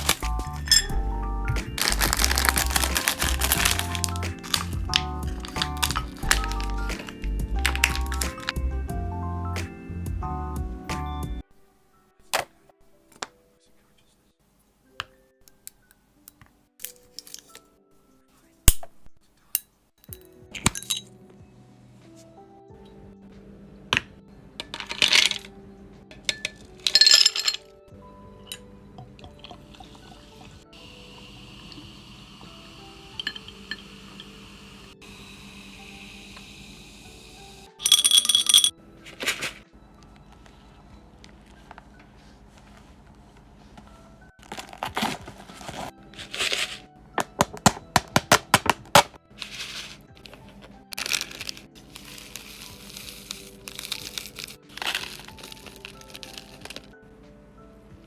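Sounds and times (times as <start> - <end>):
snack packaging crinkling and tearing: 0.0 - 0.6, 1.8 - 8.6, 44.4 - 57.0
small pieces clinking into glass: 0.0 - 1.0, 1.8 - 8.6, 20.6 - 21.1, 24.6 - 25.5, 26.3 - 27.7, 33.2 - 33.8, 37.8 - 38.7, 51.0 - 51.6, 52.4 - 56.9
soft background music: 0.0 - 58.0.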